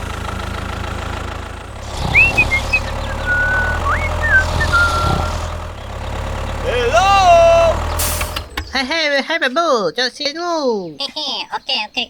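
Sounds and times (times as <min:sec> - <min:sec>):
small motor humming: 0:01.7 - 0:08.8
thin whistle-like notes: 0:02.0 - 0:05.5.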